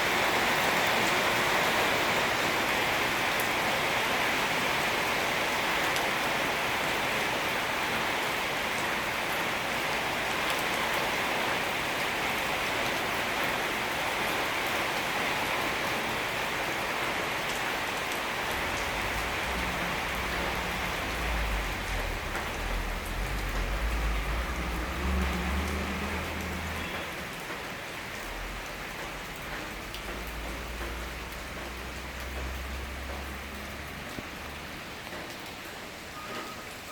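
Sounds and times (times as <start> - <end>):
steady rain hiss: 0.0 - 36.9
low rumble: 18.5 - 25.6.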